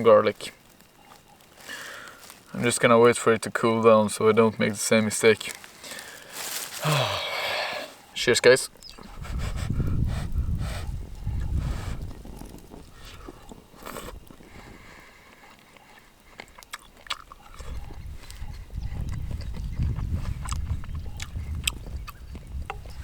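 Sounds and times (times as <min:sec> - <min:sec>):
person chewing food: 0:08.9 - 0:23.0.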